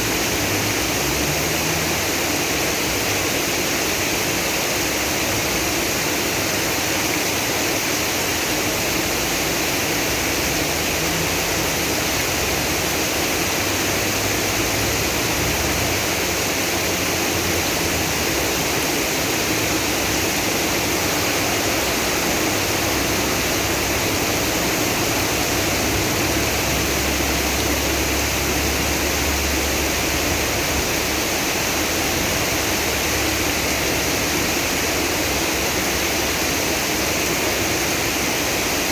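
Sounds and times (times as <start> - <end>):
floodwater rushing: 0.0 - 38.9
heavy rain pouring: 0.0 - 38.9.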